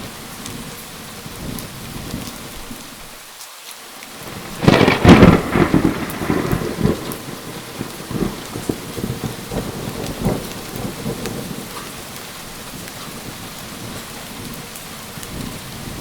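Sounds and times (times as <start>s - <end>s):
heavy rain: 0.0s - 16.0s
rolling thunder: 4.2s - 16.0s.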